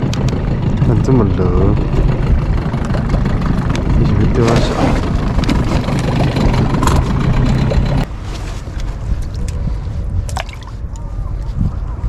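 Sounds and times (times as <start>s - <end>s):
boat motor running: 0.0s - 8.1s.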